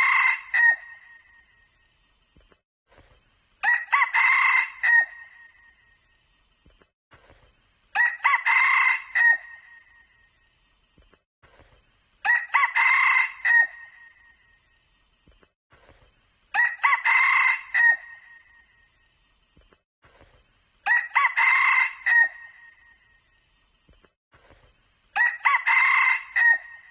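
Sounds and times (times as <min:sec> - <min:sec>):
junglefowl crowing: 0:16.6 - 0:18.4, 0:20.9 - 0:22.8, 0:25.2 - 0:26.9.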